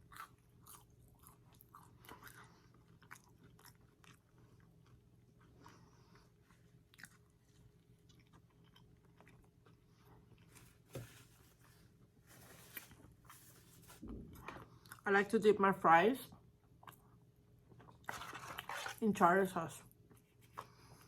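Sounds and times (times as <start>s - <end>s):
chewing french fries: 0.0s - 10.6s, 16.6s - 19.0s.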